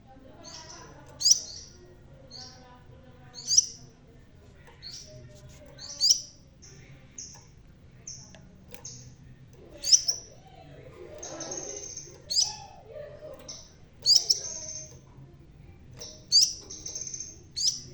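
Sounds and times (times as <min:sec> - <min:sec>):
sunbird singing high chirps: 0:00.5 - 0:02.6, 0:03.4 - 0:03.8, 0:09.8 - 0:10.3, 0:11.3 - 0:12.8, 0:13.5 - 0:15.0, 0:16.1 - 0:17.9
sharp bird calls: 0:11.2 - 0:12.8, 0:13.4 - 0:15.0.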